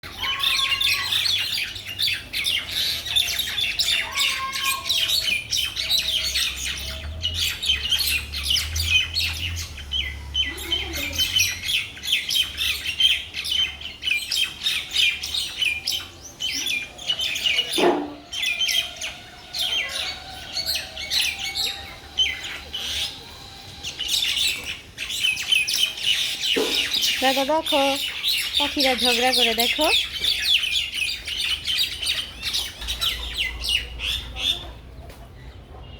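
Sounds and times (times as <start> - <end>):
birds chattering and chirping: 0.0 - 35.9
harsh bird squawks: 0.1 - 1.7, 3.1 - 5.4.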